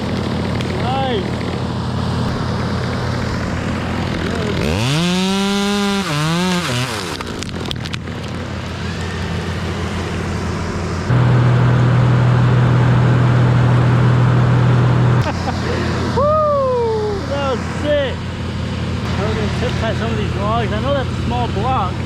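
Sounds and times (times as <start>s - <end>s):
chainsaw revving: 0.0s - 11.0s
steady engine hum: 0.0s - 22.0s.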